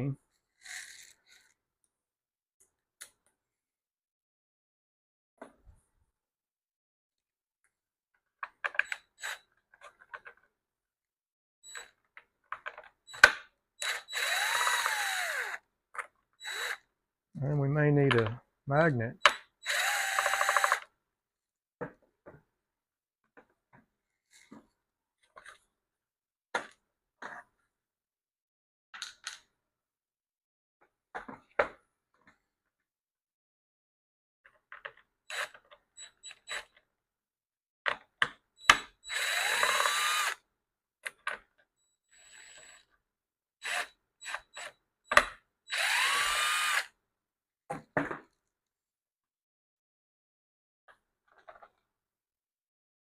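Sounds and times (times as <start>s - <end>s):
cordless driver motor whine: 13.8s - 15.6s, 19.6s - 20.8s, 39.1s - 40.4s, 45.7s - 46.9s
knocks and clatters of plastic: 47.7s - 48.4s.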